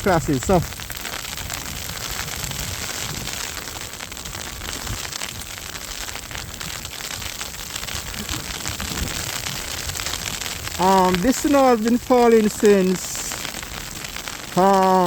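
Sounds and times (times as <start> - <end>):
faint crackling: 0.0 - 15.0
snowstorm hiss: 0.0 - 15.0.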